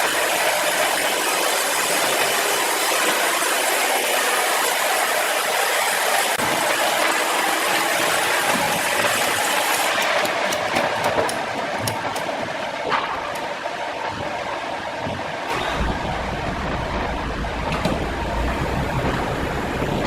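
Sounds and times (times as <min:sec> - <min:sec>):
saw cutting through log: 0:00.1 - 0:11.4.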